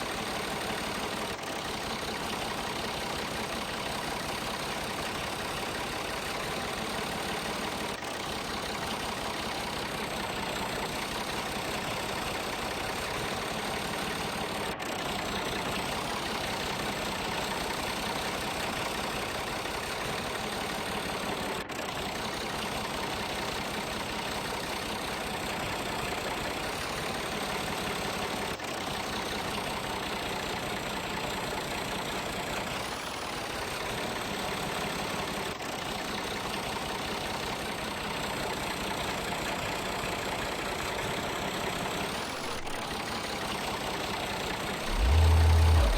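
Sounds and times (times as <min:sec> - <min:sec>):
engine idling: 0:00.0 - 0:45.9.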